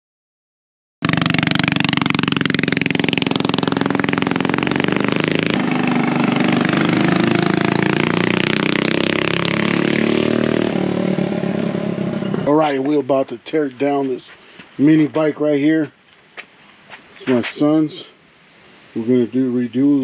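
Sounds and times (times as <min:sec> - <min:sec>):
minibike engine running: 0:01.1 - 0:10.2.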